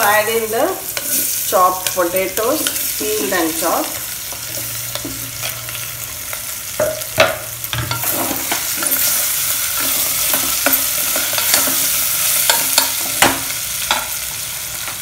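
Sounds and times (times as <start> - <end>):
potatoes sizzling in oil: 0.0 - 15.0.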